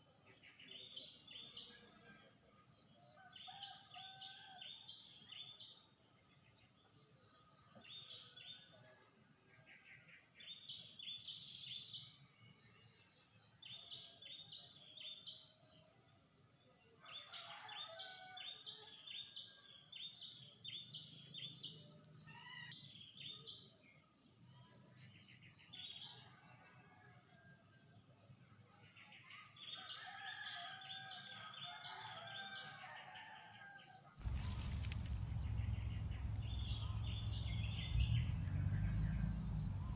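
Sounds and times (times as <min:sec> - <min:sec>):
high insect drone: 0:34.2 - 0:39.9.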